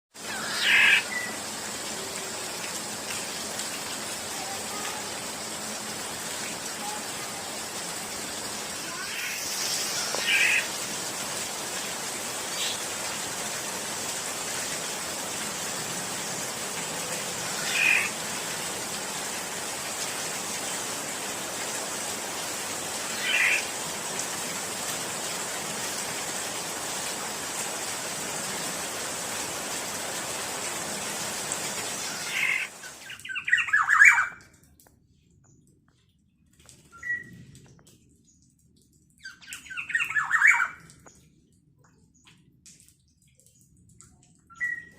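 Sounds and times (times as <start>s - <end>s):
steady hiss: 6.6s - 11.5s
bird short calls: 8.9s - 10.7s.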